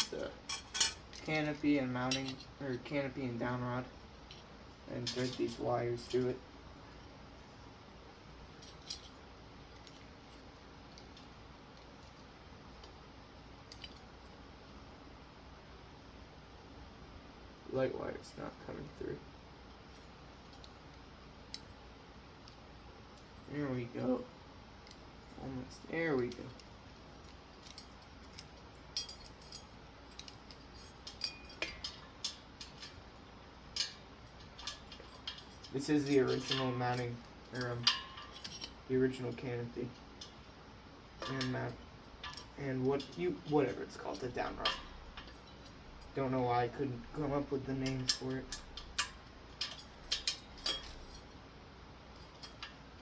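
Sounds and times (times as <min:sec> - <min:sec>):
metal ring: 0:00.0 - 0:01.5, 0:28.9 - 0:33.0, 0:33.7 - 0:39.4, 0:47.0 - 0:51.4
metal parts clicking and clinking: 0:00.0 - 0:03.0, 0:04.2 - 0:06.3, 0:08.4 - 0:12.2, 0:26.0 - 0:40.5, 0:41.1 - 0:51.4, 0:52.1 - 0:53.0
light rustling of wires: 0:00.0 - 0:15.3, 0:16.5 - 0:53.0.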